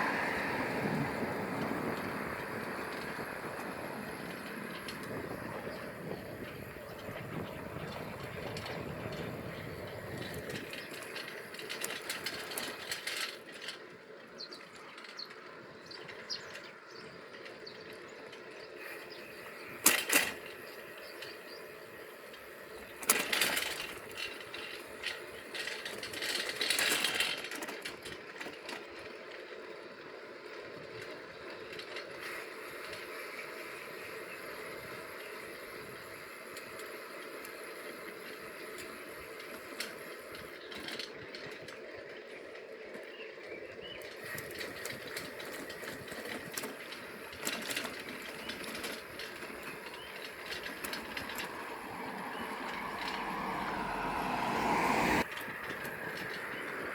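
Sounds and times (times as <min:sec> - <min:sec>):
wind noise: 0:00.0 - 0:12.9, 0:44.2 - 0:56.9
bicycle rolling: 0:00.0 - 0:56.9
bicycle rattling clatters: 0:00.2 - 0:56.9.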